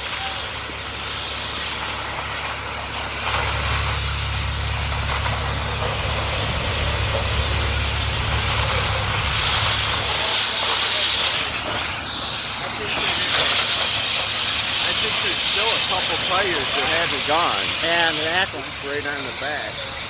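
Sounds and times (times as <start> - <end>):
hissing roar of burning truck: 0.0 - 20.0
low rumble: 3.0 - 12.6.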